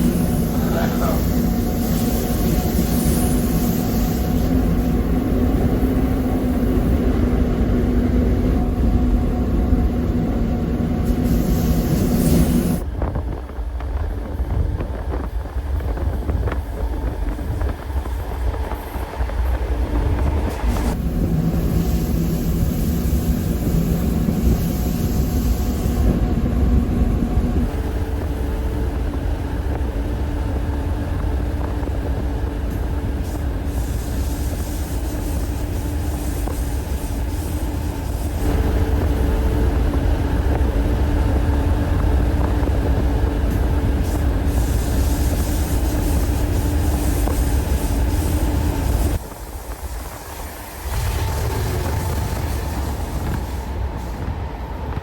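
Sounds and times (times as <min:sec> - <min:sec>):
train rumbling on track: 0:00.0 - 0:55.0.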